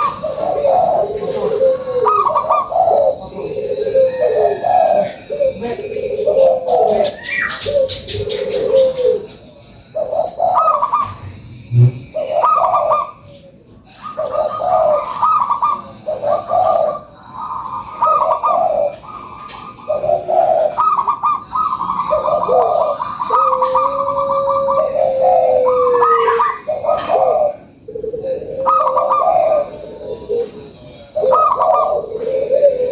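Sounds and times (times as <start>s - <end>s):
doves cooing: 0.0s - 32.9s.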